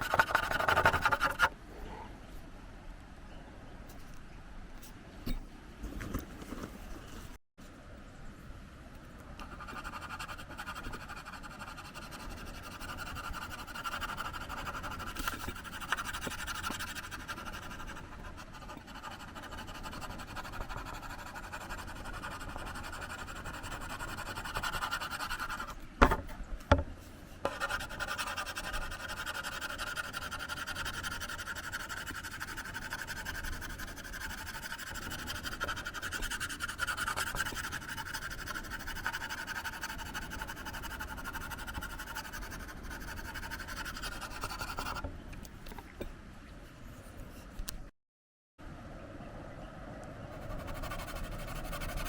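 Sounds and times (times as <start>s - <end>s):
pencil scratching on paper: 0.0s - 1.5s, 9.4s - 25.8s, 27.5s - 45.0s, 50.4s - 52.0s.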